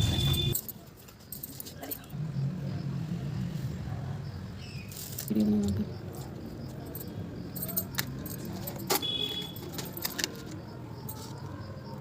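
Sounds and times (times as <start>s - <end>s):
small metal objects clinking: 0.4s - 2.1s, 4.9s - 11.5s.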